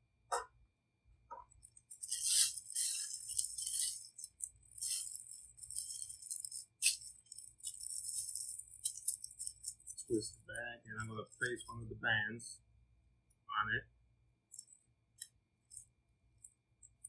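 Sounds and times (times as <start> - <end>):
plastic piping bag crinkling: 1.9 - 10.1.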